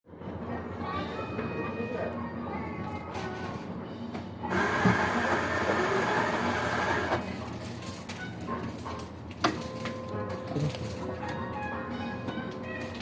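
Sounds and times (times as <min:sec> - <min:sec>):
coffee machine running: 0:04.5 - 0:07.3.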